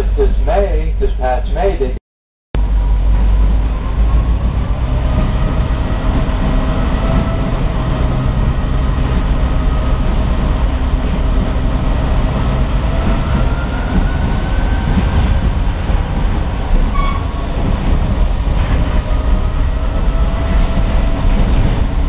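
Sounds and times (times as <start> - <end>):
train rumbling on track: 0.0 - 2.0, 2.6 - 22.0
faint wheel squeal: 16.9 - 17.4.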